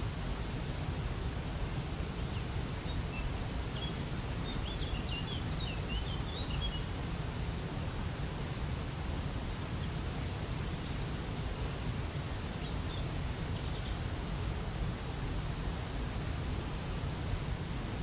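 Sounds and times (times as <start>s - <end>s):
songbird chirping: 2.8s - 6.9s.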